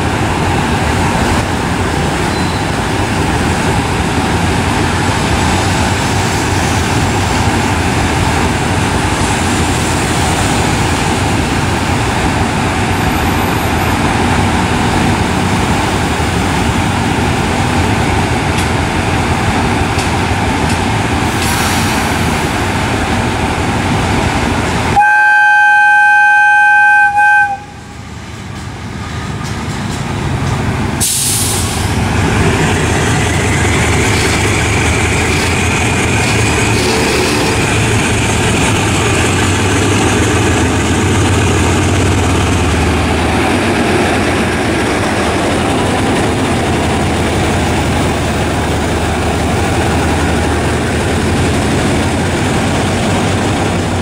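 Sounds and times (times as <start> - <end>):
train wheels on rails: 0.0 - 25.1, 27.0 - 54.0
loud train horn: 25.0 - 27.9, 36.7 - 37.9.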